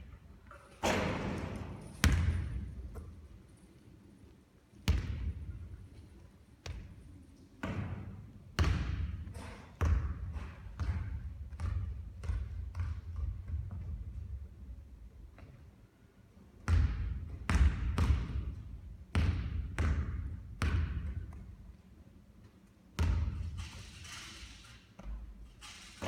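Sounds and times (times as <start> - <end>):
basketball bouncing on hard floor: 0.8 - 3.1, 4.9 - 5.4, 7.6 - 9.2, 9.8 - 14.2, 16.6 - 21.5, 23.0 - 23.6.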